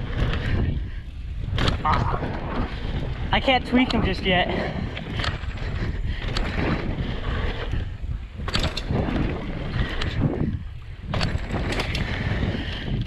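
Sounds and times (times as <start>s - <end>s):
bike knocking and rattling: 0.0s - 13.0s
wind rushing over microphone: 0.0s - 13.0s.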